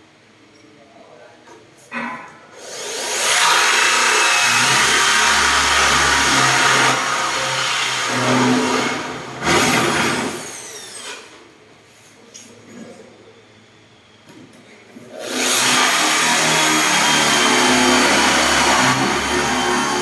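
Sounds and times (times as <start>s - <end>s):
power drill boring into wood: 2.6s - 11.3s, 15.2s - 20.0s.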